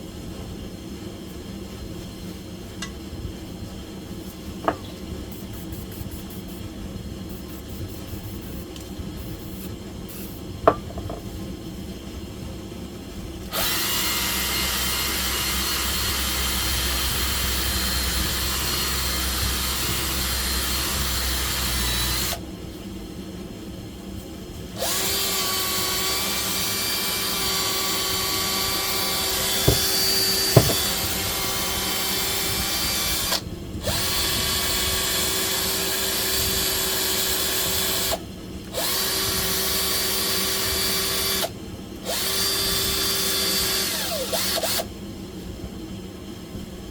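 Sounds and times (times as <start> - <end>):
power drill running: 13.5 - 22.4, 24.8 - 38.2, 42.1 - 44.9.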